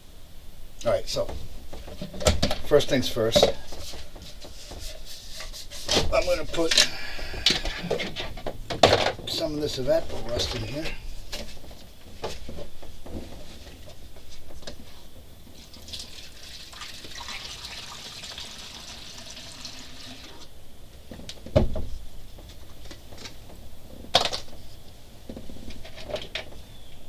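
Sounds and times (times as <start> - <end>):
liquid pouring into a bottle: 15.7 - 20.4.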